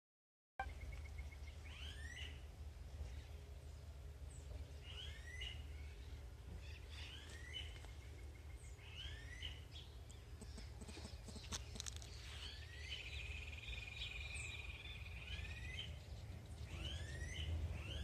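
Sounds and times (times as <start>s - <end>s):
bird singing swooping notes: 12.1s - 18.0s.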